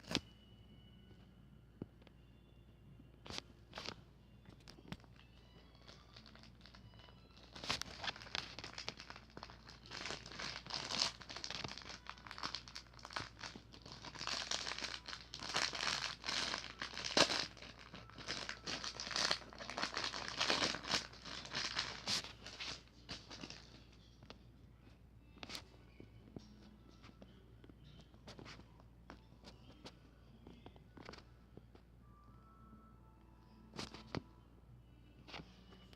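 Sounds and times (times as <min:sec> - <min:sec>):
packaging crinkling: 0:05.8 - 0:23.8.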